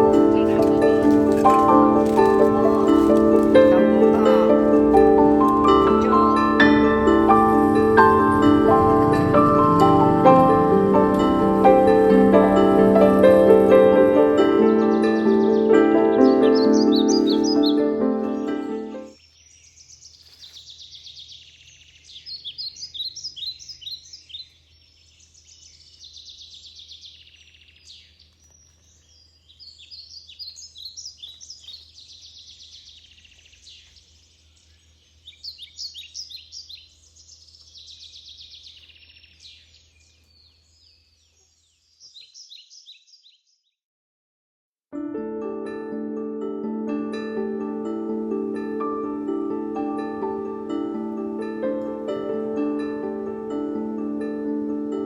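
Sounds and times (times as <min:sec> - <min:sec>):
small birds chirping and trilling: 0:00.0 - 0:43.8.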